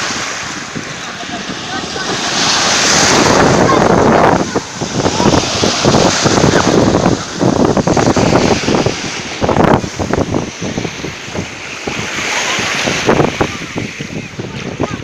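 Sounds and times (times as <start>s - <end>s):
surf washing on shore: 0.0s - 15.0s
wind buffeting microphone: 0.0s - 15.0s.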